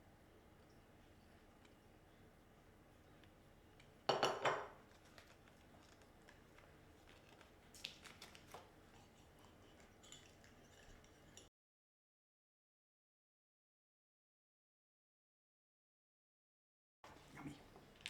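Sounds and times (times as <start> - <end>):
kitchenware clattering: 4.1 - 4.8
light clinks and taps: 9.1 - 11.5.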